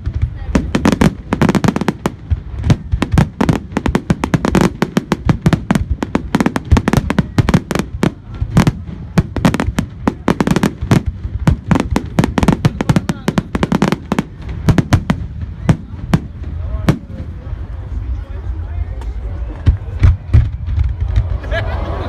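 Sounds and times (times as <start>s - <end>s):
fireworks bangs: 0.0s - 17.6s, 19.6s - 22.0s.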